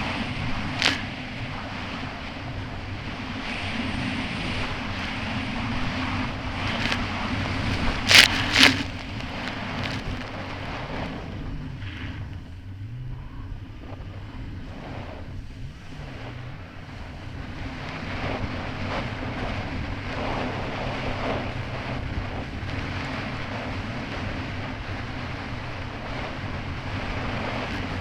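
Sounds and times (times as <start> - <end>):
water splashing against hull: 0.0 - 11.3
jet ski engine running: 0.0 - 28.0
wind on microphone: 0.0 - 28.0.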